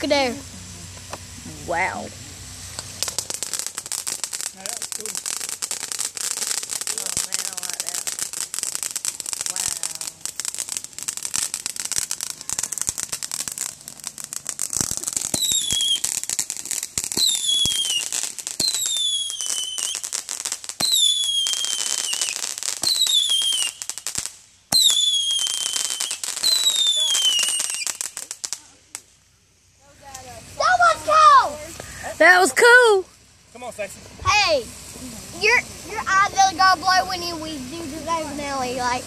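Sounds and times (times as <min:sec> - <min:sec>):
fireworks crackling: 0:00.0 - 0:39.0
shrill falling firework whistles: 0:02.6 - 0:29.0.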